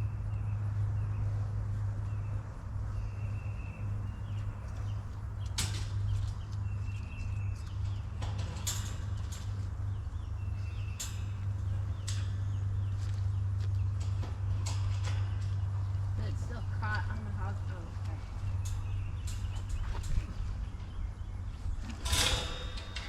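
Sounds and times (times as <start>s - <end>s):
steady low hum: 0.0s - 23.0s
metal panel clanking and rattling: 8.2s - 9.6s, 10.2s - 12.3s, 21.8s - 23.0s.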